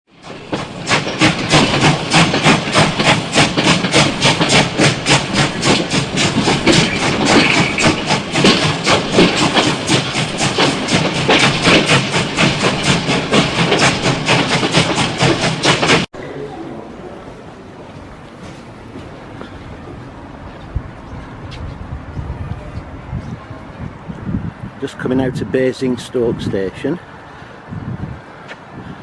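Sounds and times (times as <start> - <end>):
steam locomotive chuffing: 0.1 - 16.1
continuous steam hiss: 0.2 - 21.0.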